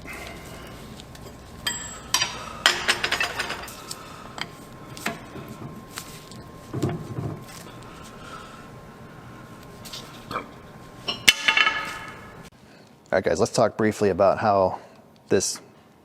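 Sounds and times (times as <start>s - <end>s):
metal tools clinking and clanking: 1.2s - 3.9s.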